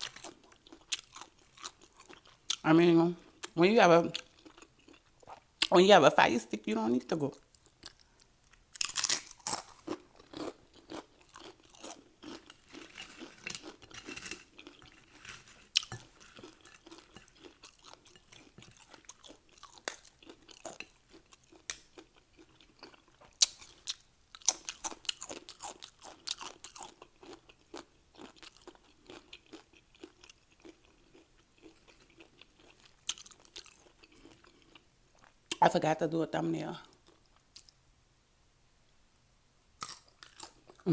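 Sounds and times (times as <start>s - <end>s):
person chewing: 0.0s - 2.6s, 4.2s - 5.7s, 7.5s - 35.6s, 39.8s - 40.8s
tortilla chip crunching: 0.0s - 2.6s, 7.5s - 34.8s.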